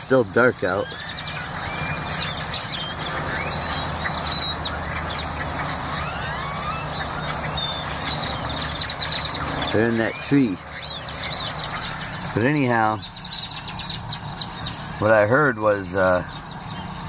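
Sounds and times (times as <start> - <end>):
birds chirping and calling: 0.0 - 17.0
steady low hum: 0.0 - 17.0.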